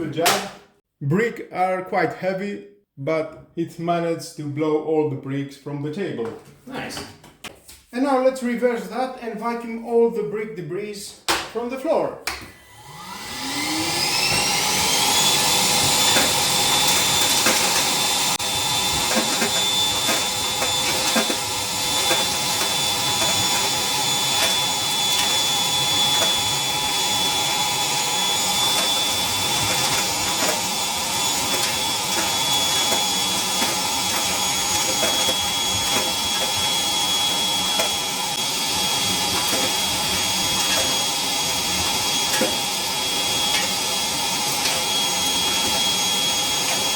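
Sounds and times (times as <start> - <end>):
vacuum cleaner motor whine: 12.4 - 46.9
debris rattling through hose: 14.4 - 46.9.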